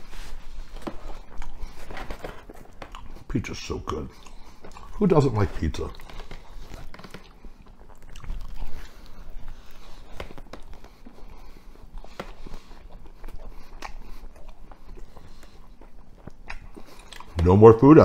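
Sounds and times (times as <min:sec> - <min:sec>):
man chewing food: 0:00.0 - 0:17.6.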